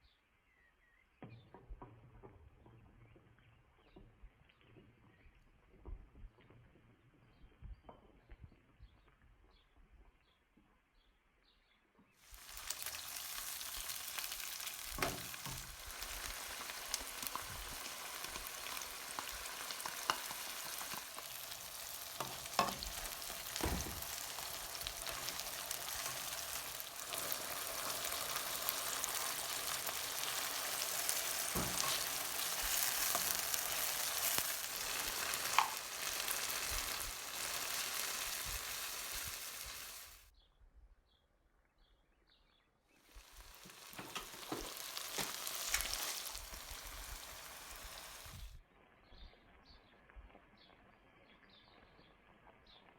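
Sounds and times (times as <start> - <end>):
food sizzling in hot oil: 12.2 - 40.3, 43.0 - 48.6.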